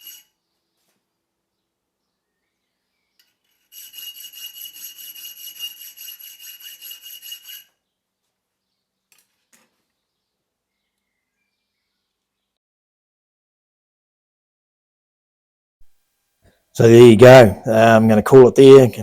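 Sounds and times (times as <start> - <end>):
hand file rasping on steel: 0.0 - 0.3, 3.5 - 7.8
steady ringing tone: 0.0 - 0.4.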